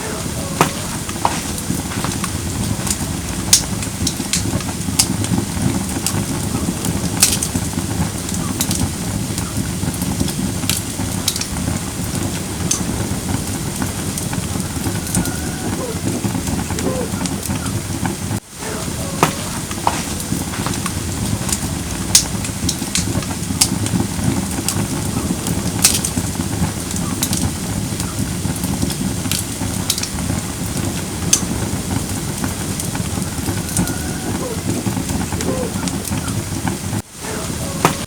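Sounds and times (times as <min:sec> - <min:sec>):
fire crackling and popping: 0:00.0 - 0:38.0
rush of flames: 0:00.0 - 0:38.0.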